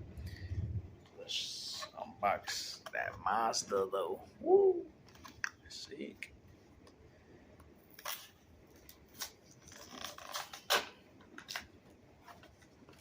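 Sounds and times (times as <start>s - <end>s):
plastic blister packaging snapping: 7.9s - 11.7s.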